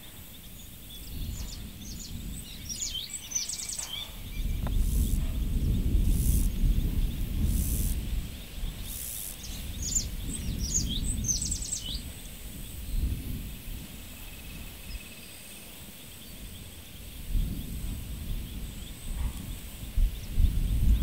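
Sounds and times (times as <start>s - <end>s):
faint high insect buzz: 0.0s - 19.0s
bird chirping: 0.1s - 13.2s.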